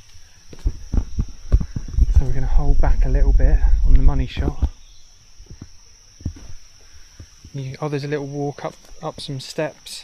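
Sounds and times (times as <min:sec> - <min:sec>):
insects droning: 0:00.0 - 0:10.0
soft low thumps: 0:00.5 - 0:07.8.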